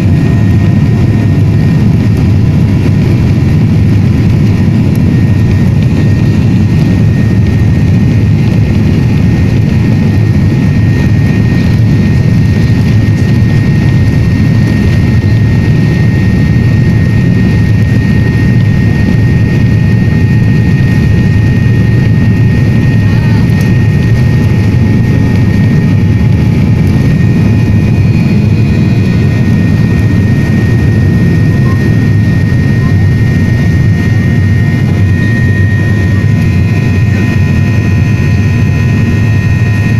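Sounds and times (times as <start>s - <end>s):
jet engine and airflow rumble: 0.0s - 39.9s
thin even whine: 0.0s - 39.9s.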